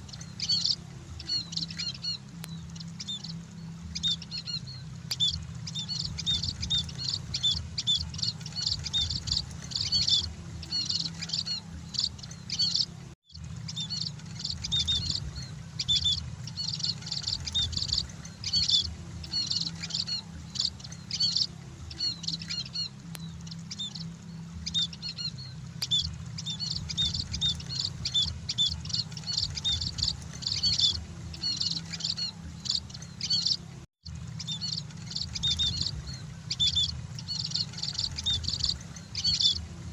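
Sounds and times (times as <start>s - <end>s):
flock of birds chirping: 0.0s - 39.9s
steady low hum: 0.0s - 39.9s.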